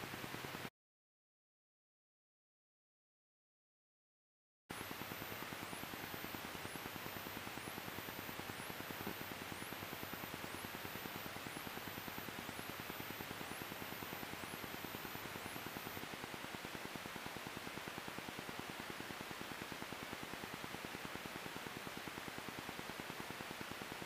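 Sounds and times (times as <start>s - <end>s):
electrical hiss and buzz: 4.7s - 16.0s
faint high whine: 4.7s - 24.0s.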